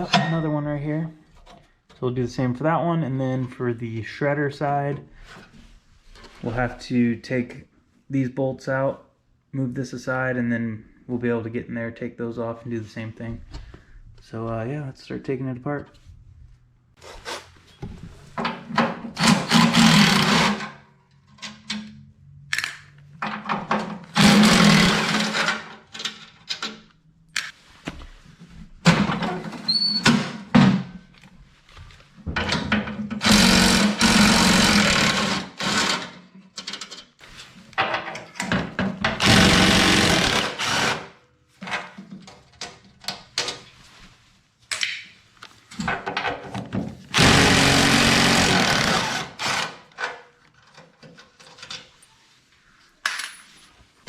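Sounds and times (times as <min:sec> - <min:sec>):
tools clinking and knocking: 0:00.0 - 0:00.7, 0:36.4 - 0:37.2, 0:53.0 - 0:53.8
impact wrench hammering: 0:33.2 - 0:36.0, 0:39.1 - 0:41.1, 0:47.2 - 0:49.8.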